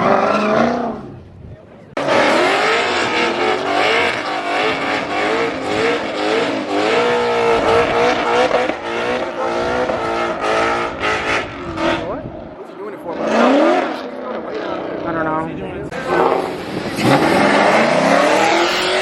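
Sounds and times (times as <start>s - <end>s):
tires squealing: 0.0s - 1.1s, 2.0s - 12.3s, 16.0s - 19.0s
car engine revving: 2.0s - 19.0s.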